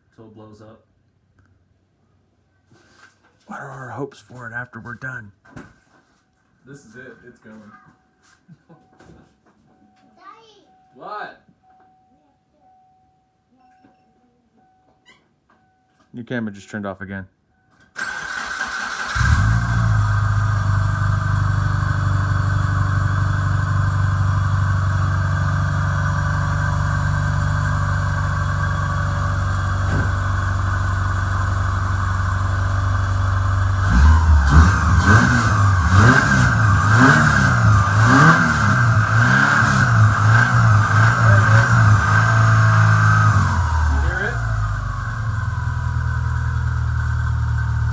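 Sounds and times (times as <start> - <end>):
car engine idling and revving: 18.0 - 47.9.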